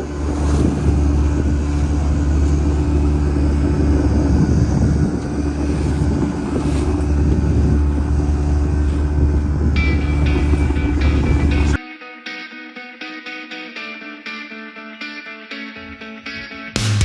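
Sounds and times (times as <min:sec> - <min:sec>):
engine humming: 0:00.0 - 0:11.8
steady tones: 0:00.0 - 0:11.8.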